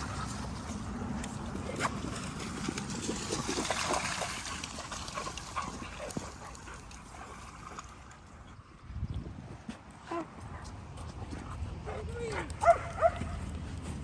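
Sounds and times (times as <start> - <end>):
dogs splashing in water: 0.0 - 8.4.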